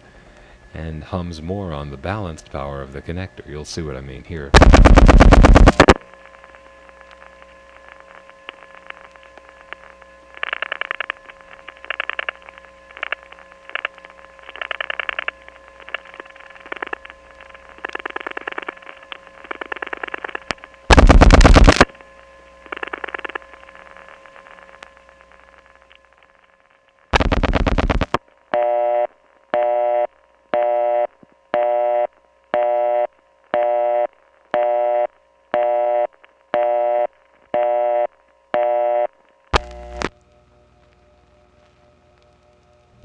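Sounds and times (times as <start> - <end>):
telephone line hum: 0.0 - 43.0
dial-pulse clicks: 4.6 - 40.2
buzzing switch clicks: 39.6 - 40.2.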